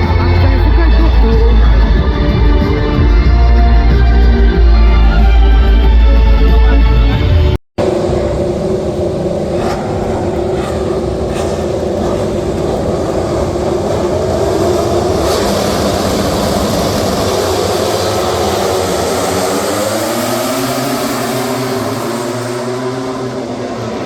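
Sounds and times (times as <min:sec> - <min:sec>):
racing motorcycle engines: 0:00.0 - 0:24.0.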